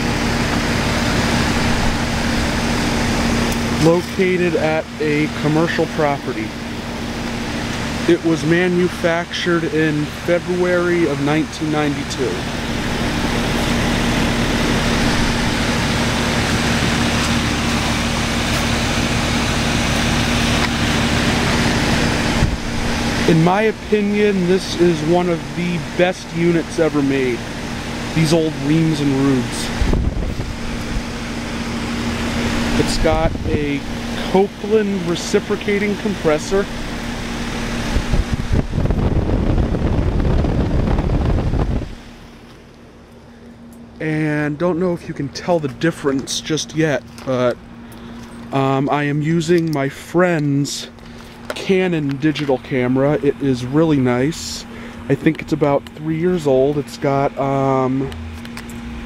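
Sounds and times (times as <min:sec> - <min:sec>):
compressor humming: 0:00.0 - 0:59.0
fan air rushing: 0:00.0 - 0:59.0
wind buffeting microphone: 0:22.2 - 0:23.2, 0:29.7 - 0:34.1, 0:36.8 - 0:42.1.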